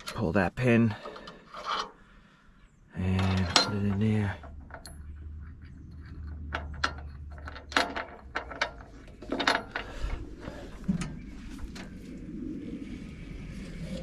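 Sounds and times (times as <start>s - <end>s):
metal clanks and clicks: 0.9s - 2.0s, 3.0s - 12.0s.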